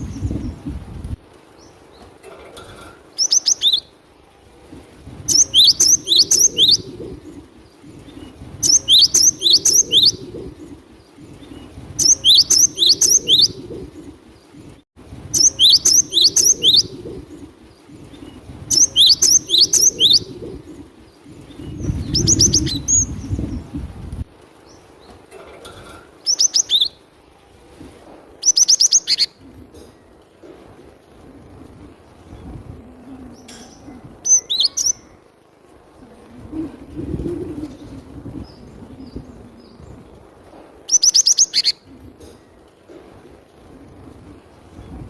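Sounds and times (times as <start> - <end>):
bird singing whistled notes: 5.3 - 6.8, 8.6 - 10.2, 11.6 - 13.6, 15.4 - 16.9, 40.9 - 41.8.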